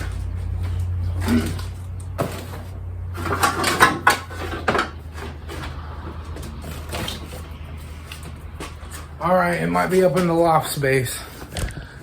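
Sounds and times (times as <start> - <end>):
clattering knocks and rattles: 0.0 - 9.2
items being moved and knocked: 0.0 - 12.0
steady low hum: 0.0 - 12.0.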